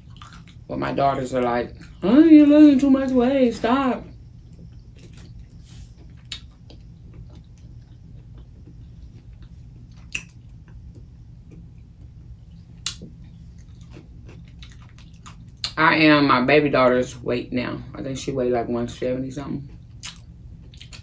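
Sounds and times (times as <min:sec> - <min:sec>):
close chewing and mouth sounds: 0:00.0 - 0:03.2, 0:04.2 - 0:15.8, 0:19.6 - 0:21.0
steady low hum: 0:00.0 - 0:21.0
sharp wet mouth clicks: 0:10.1 - 0:10.4, 0:12.8 - 0:13.1, 0:20.0 - 0:21.0.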